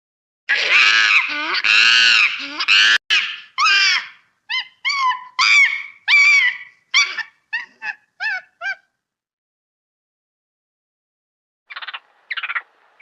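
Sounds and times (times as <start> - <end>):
high-pitched animal calls: 0.5 - 8.9, 11.7 - 12.7.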